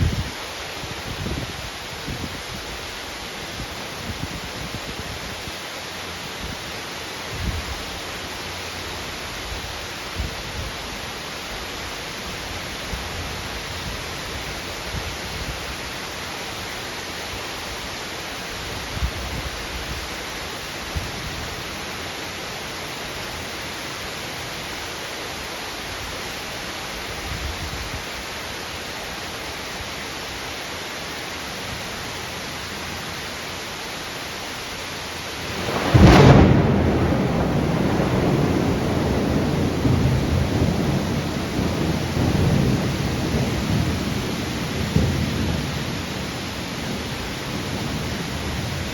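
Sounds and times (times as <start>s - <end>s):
heavy rain pouring: 0.0s - 48.9s
thunder crack and rumble: 35.5s - 48.8s.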